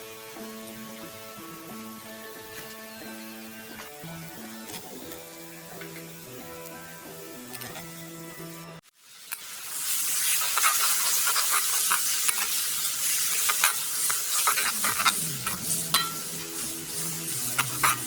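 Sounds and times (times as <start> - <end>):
food sizzling in a pan: 8.8 - 18.0
utensil clicking against pan: 13.3 - 16.2, 17.5 - 18.0.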